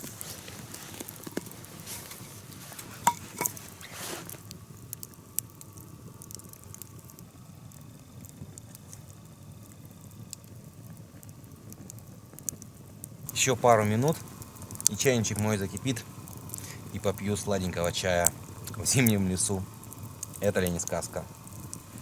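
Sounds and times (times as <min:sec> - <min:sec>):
rustling brushing noise: 0:00.0 - 0:04.4
campfire crackling: 0:00.0 - 0:22.0
faint steady hiss: 0:00.0 - 0:22.0.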